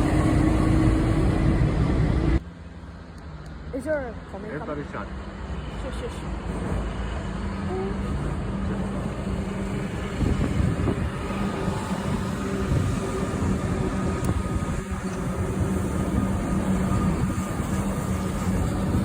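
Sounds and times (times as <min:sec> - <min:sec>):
train rolling rumble: 0:00.0 - 0:03.7, 0:05.1 - 0:19.0
train engine hum: 0:00.0 - 0:19.0.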